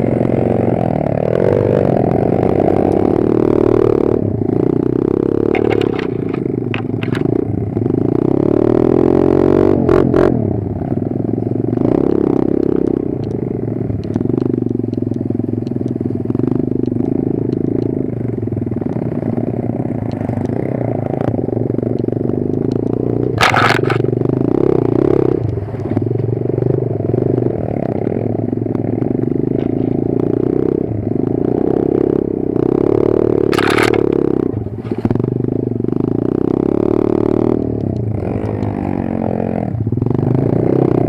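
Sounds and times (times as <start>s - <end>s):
motorbike engine running: 0.0s - 41.0s
clattering knocks from bike: 5.5s - 7.3s, 23.4s - 24.1s, 33.5s - 34.2s.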